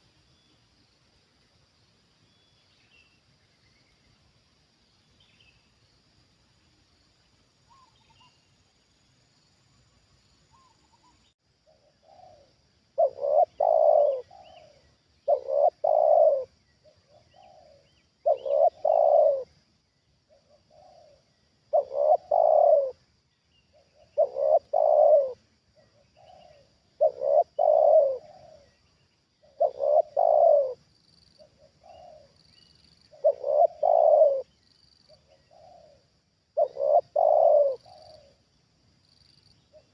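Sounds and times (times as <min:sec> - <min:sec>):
small birds chirping: 0:07.6 - 0:09.0, 0:09.9 - 0:39.9
dove cooing: 0:11.7 - 0:19.6, 0:20.3 - 0:23.0, 0:23.8 - 0:28.8, 0:29.4 - 0:30.8, 0:31.4 - 0:32.4, 0:33.1 - 0:34.5, 0:35.1 - 0:38.4.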